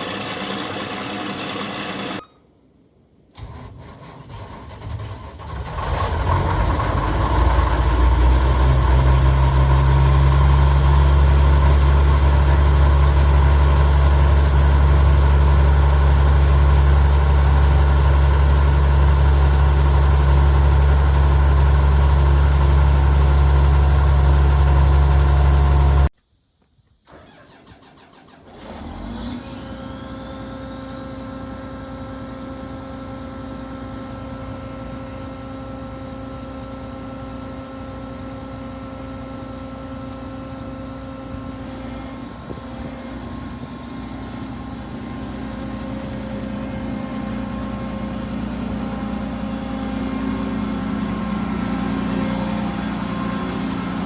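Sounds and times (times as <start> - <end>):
diesel engine cranking and starting: 0.0 - 2.2, 3.3 - 26.1, 27.0 - 54.0
diesel engine running loud: 0.0 - 2.2, 5.2 - 26.1, 28.5 - 54.0
faint rising whine: 40.7 - 54.0.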